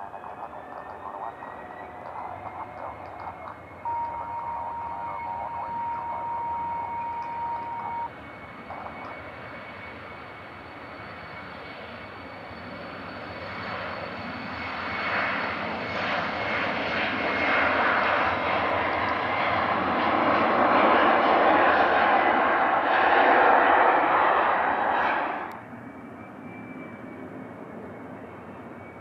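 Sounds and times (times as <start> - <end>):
steady high tone: 0.0 - 8.1
jet engines rushing: 0.0 - 29.0.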